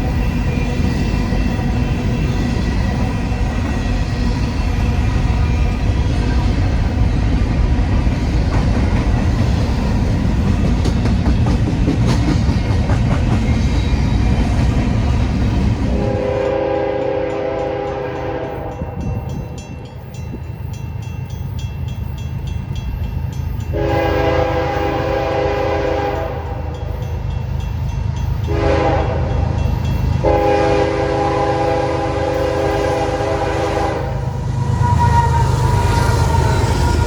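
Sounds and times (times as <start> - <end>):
train rumbling: 0.0 - 37.0
locomotive horn blasts: 16.0 - 19.2, 23.7 - 26.8, 28.4 - 29.4, 30.2 - 37.0.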